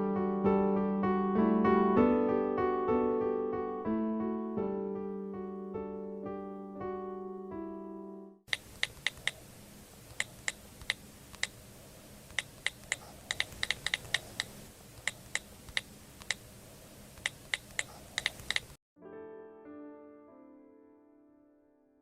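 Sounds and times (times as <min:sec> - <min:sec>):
sharp clicks: 0:08.5 - 0:09.4, 0:10.1 - 0:11.6, 0:12.3 - 0:16.4, 0:17.2 - 0:18.8
faint steady hiss: 0:08.5 - 0:18.8.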